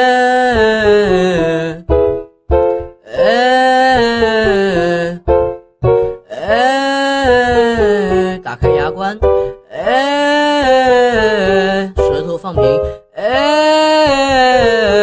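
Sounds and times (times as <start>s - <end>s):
man singing a scale: 6.4s - 9.3s, 10.8s - 15.0s.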